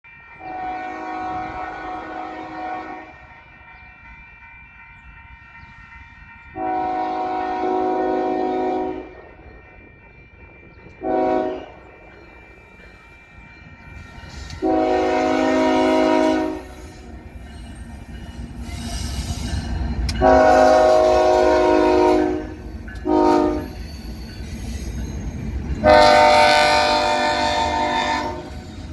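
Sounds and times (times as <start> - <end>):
locomotive air horn: 0.4 - 3.2, 6.6 - 9.1, 11.0 - 11.7, 14.6 - 16.8, 20.2 - 23.8, 25.8 - 28.6.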